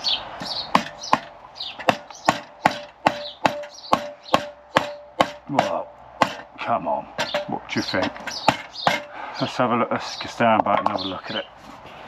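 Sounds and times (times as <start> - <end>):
mallet knocking chair joints: 0.4 - 6.5, 7.1 - 9.2, 10.6 - 11.1.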